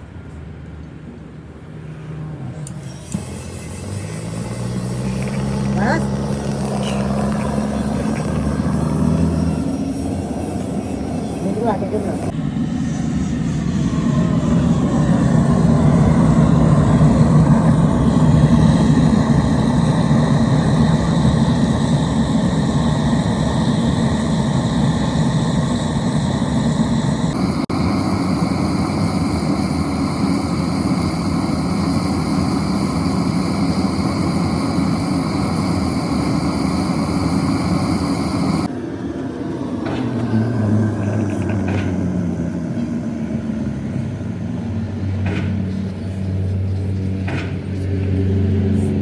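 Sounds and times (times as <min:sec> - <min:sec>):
diesel engine droning: 0:01.4 - 0:49.0.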